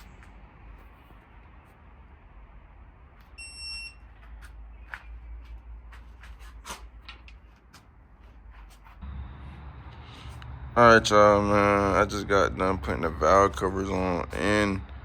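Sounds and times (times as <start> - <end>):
high electronic beep: 3.4 - 4.0
low steady hum: 9.0 - 15.0.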